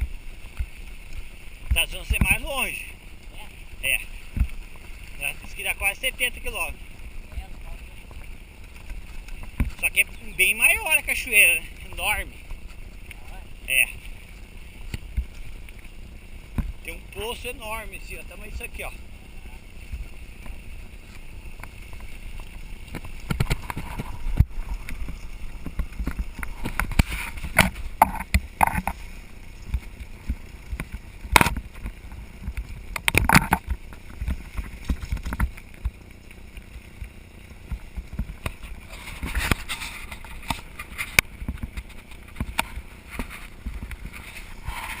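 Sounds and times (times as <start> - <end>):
wind rumbling on microphone: 0.0 - 45.0
bike rattling and knocking: 21.6 - 29.0, 29.6 - 36.1.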